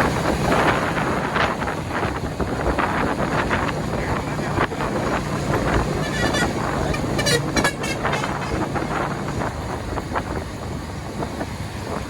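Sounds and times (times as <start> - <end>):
traffic road noise rumble: 0.0 - 12.0
horn toots: 5.5 - 9.4.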